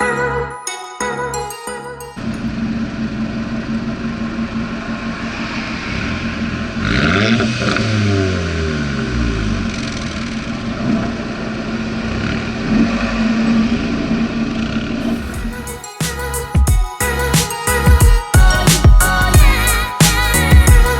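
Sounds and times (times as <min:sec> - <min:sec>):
car engine revving with rasp: 0:02.6 - 0:15.6.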